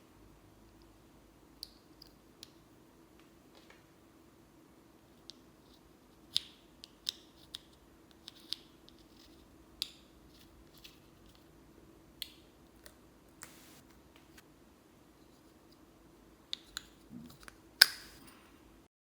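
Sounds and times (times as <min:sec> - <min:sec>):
short hiss: 0:13.4 - 0:14.4.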